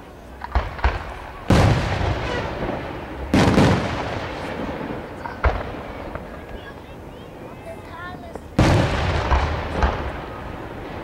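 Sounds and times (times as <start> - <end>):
small firework pops: 0.4 - 2.8, 3.4 - 6.8, 8.3 - 11.0
firework booms with rumbling echo: 0.4 - 6.8, 8.6 - 11.0.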